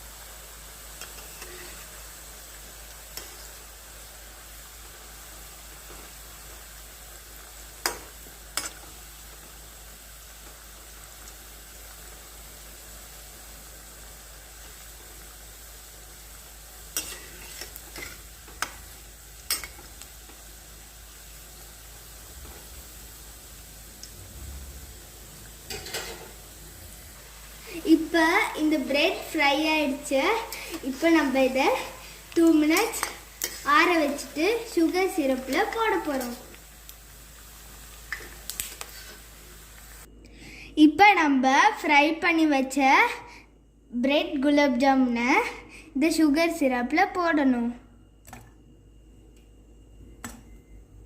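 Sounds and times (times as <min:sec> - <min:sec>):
deep-frying sizzle in hot oil: 0:00.0 - 0:40.1.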